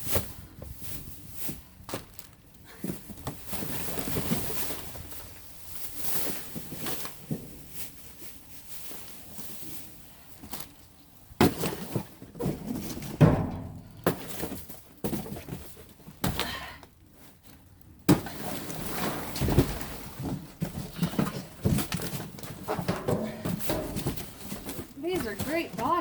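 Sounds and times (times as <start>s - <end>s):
rustling of boxes and trash: 0.0s - 26.0s
thuds and knocks in dumpster: 11.4s - 15.4s, 19.3s - 26.0s.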